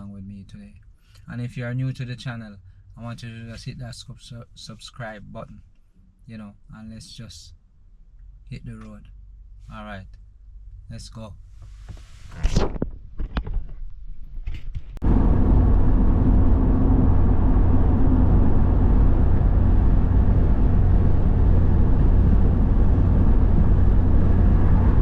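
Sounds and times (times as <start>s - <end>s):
car engine and tyres rumbling: 15.0s - 25.0s.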